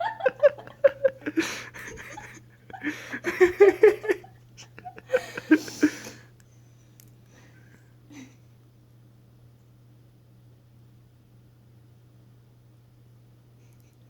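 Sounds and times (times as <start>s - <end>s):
people laughing: 0.0s - 6.2s.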